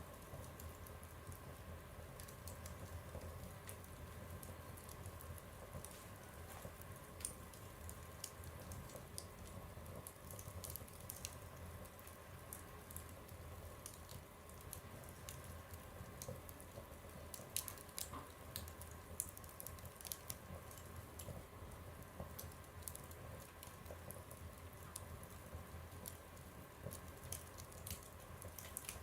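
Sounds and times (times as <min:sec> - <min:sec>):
fire crackling in a stove: 0:00.0 - 0:29.0
loud fire snaps: 0:00.0 - 0:29.0.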